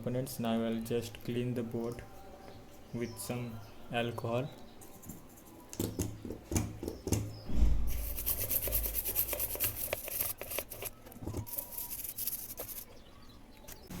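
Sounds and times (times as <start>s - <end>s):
low thump: 7.5s - 8.2s
scratchy scrubbing of circuit board: 7.9s - 12.9s.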